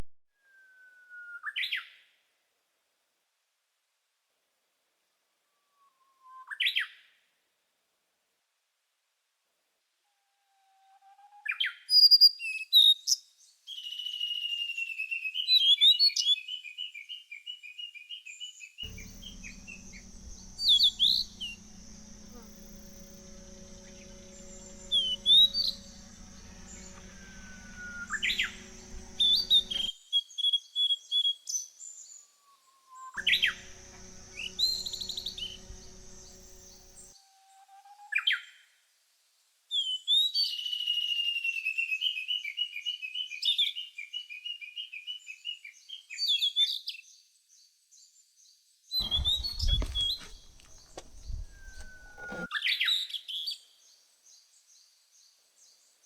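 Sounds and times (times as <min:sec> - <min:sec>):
steady low hum: 0:18.9 - 0:29.9, 0:33.2 - 0:37.1, 0:49.0 - 0:52.5.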